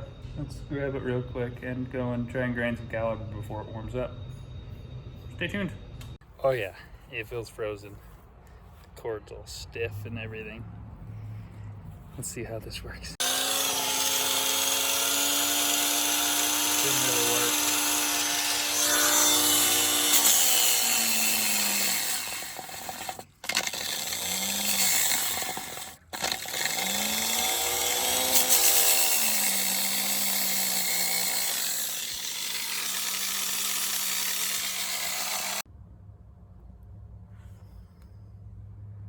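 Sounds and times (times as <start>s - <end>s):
angle grinder grinding metal: 13.2s - 35.6s.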